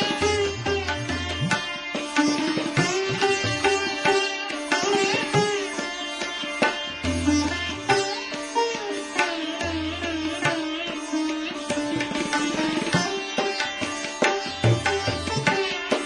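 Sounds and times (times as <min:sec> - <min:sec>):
sitar plucked notes: 0:00.0 - 0:16.0
tabla strokes: 0:00.0 - 0:16.0.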